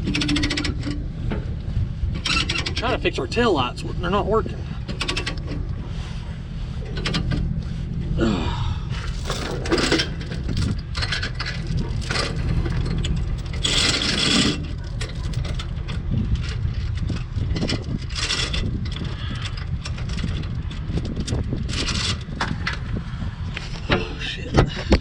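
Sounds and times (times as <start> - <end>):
steady low rumble: 0.8 - 24.9
rasping scrape: 9.0 - 16.0
hands scraping and clicking wiring: 9.0 - 22.5.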